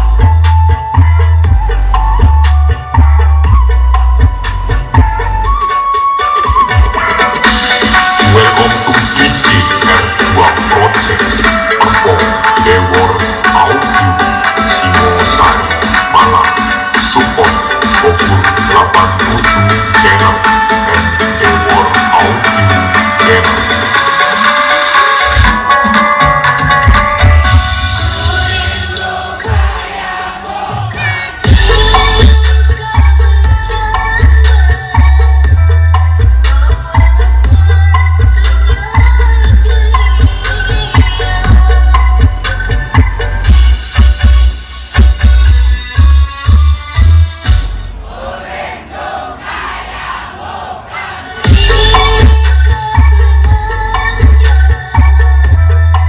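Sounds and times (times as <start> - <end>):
loud music over sound system: 0.0 - 48.3, 51.2 - 56.0
heavy bass drum hits: 31.4 - 33.7.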